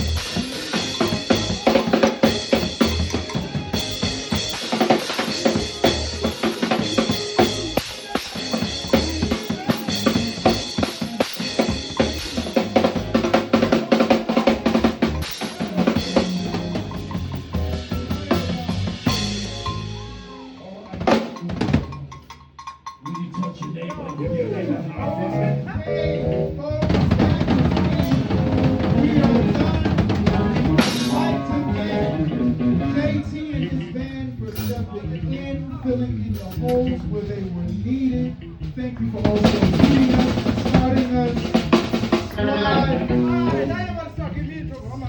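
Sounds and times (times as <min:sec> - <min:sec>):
live band playing instrumental: 0:00.0 - 0:22.2, 0:25.0 - 0:33.0, 0:39.3 - 0:43.8
drum kit: 0:00.0 - 0:24.4, 0:26.1 - 0:32.8, 0:39.2 - 0:44.0.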